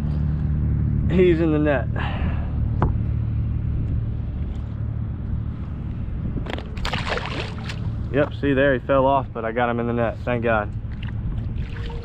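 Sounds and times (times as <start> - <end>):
low rumble: 0.0 - 12.0
fish flopping into landing net: 6.5 - 8.0.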